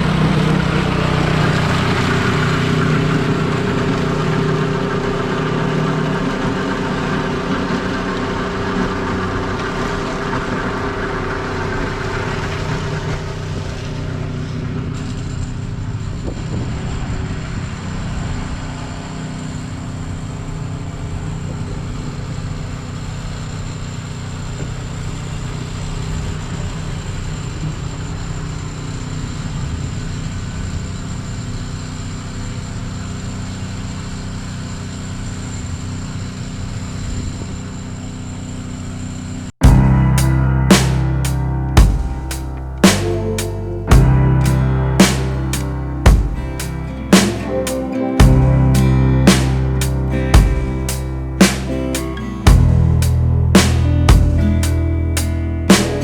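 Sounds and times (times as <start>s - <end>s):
snow-removal machine engine running: 0.0s - 15.2s.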